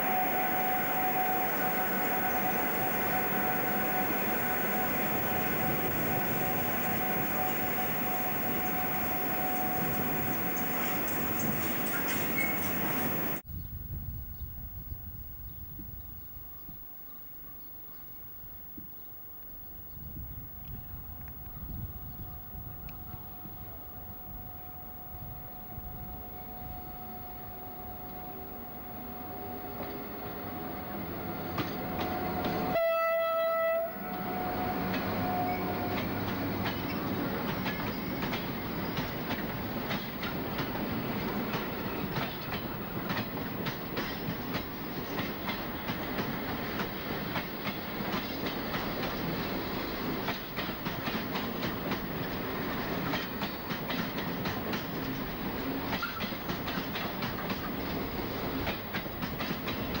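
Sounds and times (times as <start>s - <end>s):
train horn blast: 0.0s - 13.4s, 20.5s - 43.1s
train wheels clattering over rail joints: 35.9s - 60.0s.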